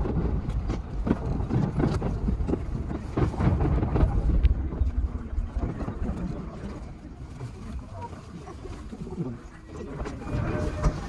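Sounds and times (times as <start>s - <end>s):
wheels clicking over rail joints: 0.0s - 7.1s
train low rumble: 0.0s - 11.0s.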